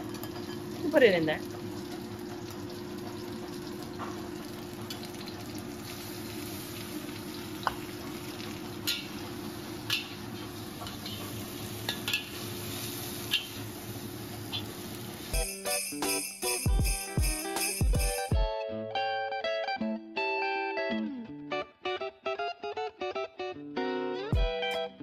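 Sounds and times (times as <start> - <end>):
shrimp sizzling in a wok: 0.0 - 17.0
metal utensil scraping a wok: 10.8 - 13.6
jingling music: 15.3 - 18.6.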